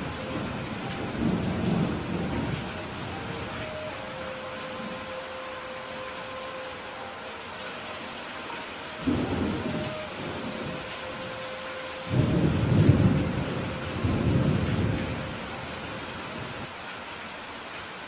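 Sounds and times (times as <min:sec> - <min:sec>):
thunder rumbling: 0:00.0 - 0:04.2, 0:09.0 - 0:16.6
rain hissing: 0:00.0 - 0:18.0.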